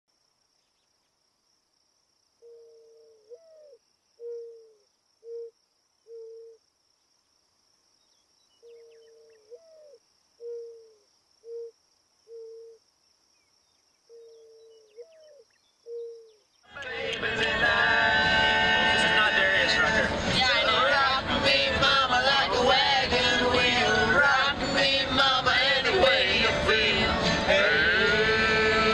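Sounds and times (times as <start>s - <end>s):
faint high insect buzz: 0.1s - 16.7s
dove cooing: 2.4s - 6.6s, 8.6s - 12.8s, 14.1s - 16.4s.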